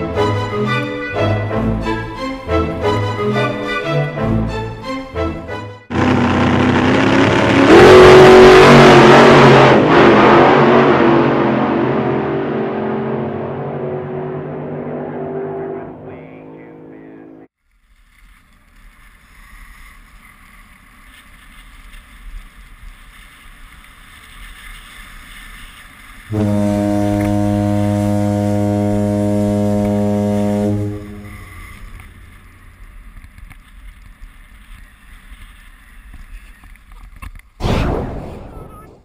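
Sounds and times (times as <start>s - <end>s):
long deep horn blast: 0.0s - 17.5s, 26.3s - 31.9s
skis running over snow: 17.7s - 26.4s, 31.6s - 37.2s.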